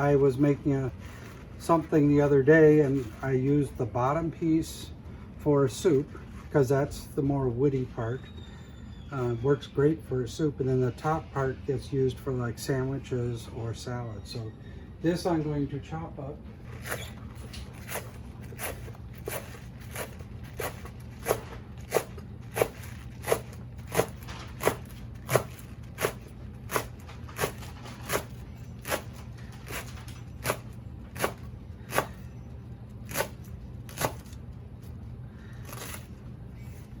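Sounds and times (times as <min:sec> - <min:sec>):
knife chopping on cutting board: 0:17.8 - 0:32.2, 0:33.1 - 0:34.4.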